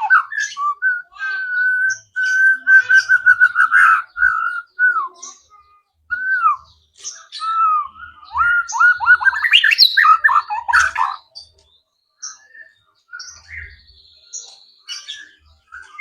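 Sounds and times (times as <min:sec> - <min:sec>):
bird singing clear whistles: 0:00.0 - 0:11.2.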